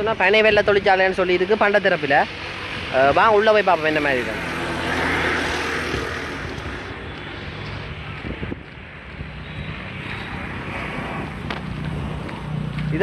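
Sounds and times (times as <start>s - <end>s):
wind buffeting microphone: 4.3s - 13.0s.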